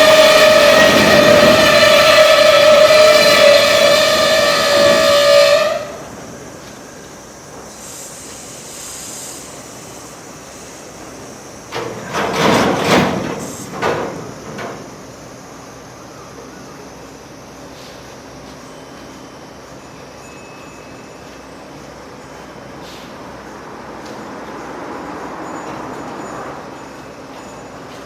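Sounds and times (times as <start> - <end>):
locomotive whistle blast: 0.0 - 6.1
train wagons clanking: 0.0 - 6.8, 11.7 - 15.0, 24.0 - 28.0.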